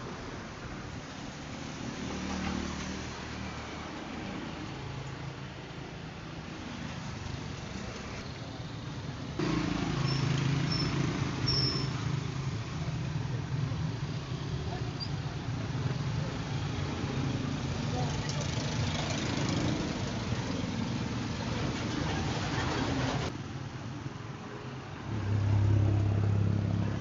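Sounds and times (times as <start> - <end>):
brief high squeaks: 10.1 - 12.0.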